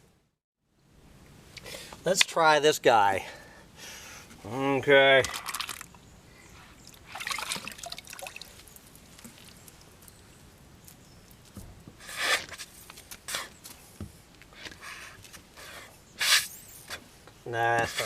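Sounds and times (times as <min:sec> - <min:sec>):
plunger squelching wetly: 0:06.9 - 0:09.6.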